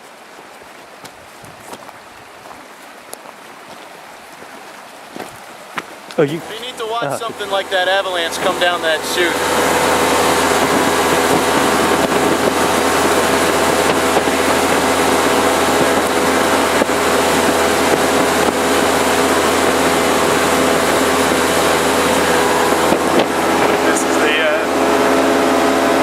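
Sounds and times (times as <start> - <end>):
water rushing: 0.0 - 26.0
boat engine drone: 6.2 - 26.0.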